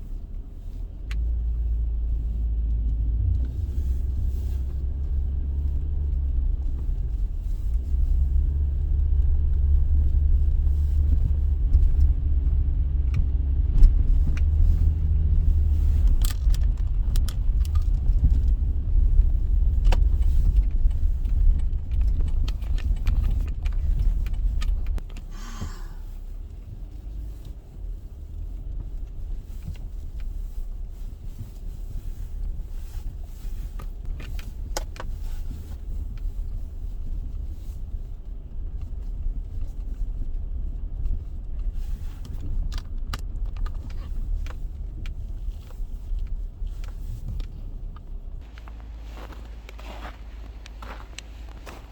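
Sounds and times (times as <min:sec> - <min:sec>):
car road rumble: 0:00.0 - 0:51.9
small rattling clicks: 0:15.7 - 0:25.3.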